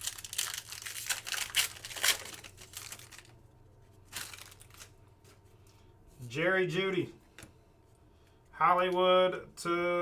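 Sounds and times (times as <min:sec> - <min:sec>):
trading cards and wrapper rustling: 0:00.0 - 0:05.4.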